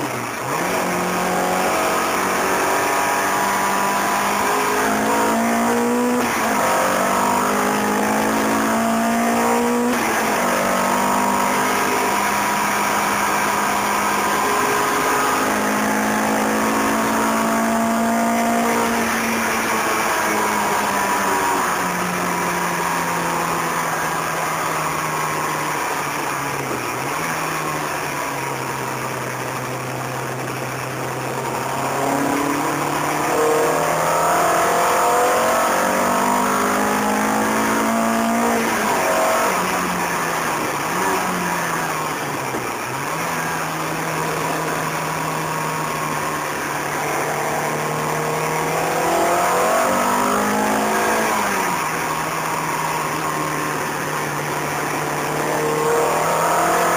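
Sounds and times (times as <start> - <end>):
car engine revving: 0.0 - 56.9
road and wind noise: 0.0 - 56.9.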